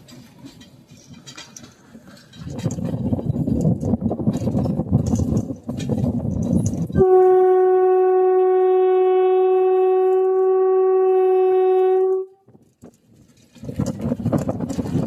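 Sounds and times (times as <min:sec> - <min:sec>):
long horn blast: 0:07.0 - 0:12.4.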